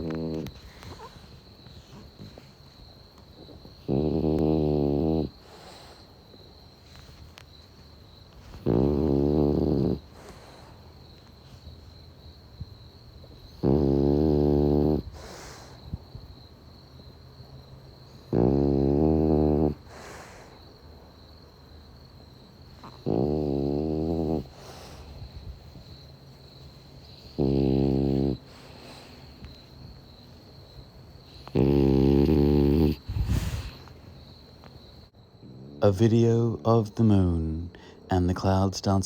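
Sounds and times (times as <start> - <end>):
dog snoring: 0.0 - 2.6, 3.2 - 6.1, 8.4 - 10.8, 13.2 - 16.2, 18.1 - 20.6, 22.7 - 25.6, 27.0 - 30.0, 31.2 - 34.2, 35.4 - 37.6
crickets chirping: 0.0 - 39.0.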